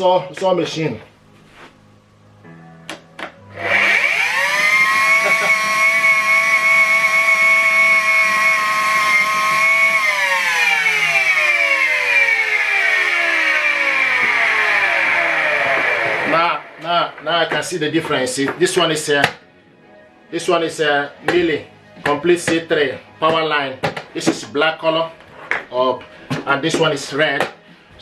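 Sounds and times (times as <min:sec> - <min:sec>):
vacuum cleaner motor whining: 0:03.4 - 0:17.7.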